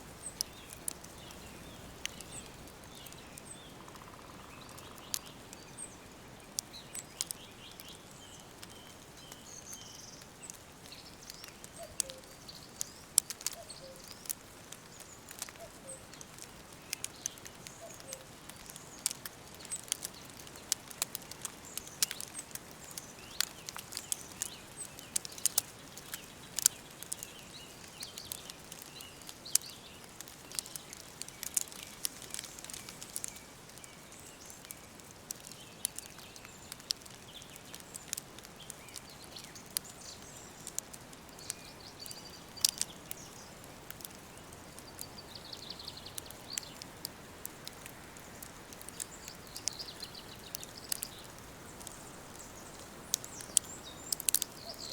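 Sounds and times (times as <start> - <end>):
wood fire crackling and popping: 0.0 - 54.9
faint bird chirps: 10.9 - 14.3, 16.8 - 19.1, 48.3 - 54.9.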